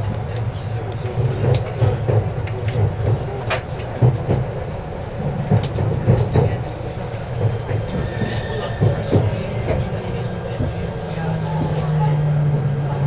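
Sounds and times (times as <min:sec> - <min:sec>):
train rumbling at speed: 0:00.0 - 0:13.0
sharp clicks and knocks: 0:05.5 - 0:06.7.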